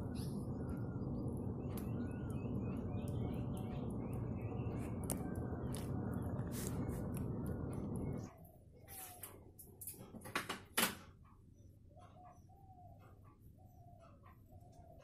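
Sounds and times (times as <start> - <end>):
steady low background noise: 0.0 - 8.8
small birds chirping: 0.0 - 9.5, 11.3 - 15.0.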